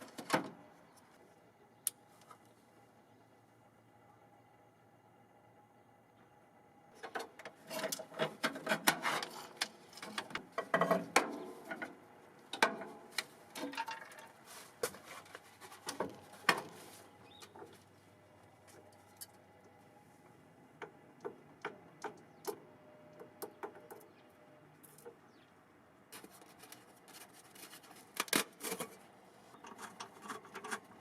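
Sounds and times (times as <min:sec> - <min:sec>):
tools and hands handling parts: 0:07.0 - 0:17.9, 0:26.1 - 0:31.0.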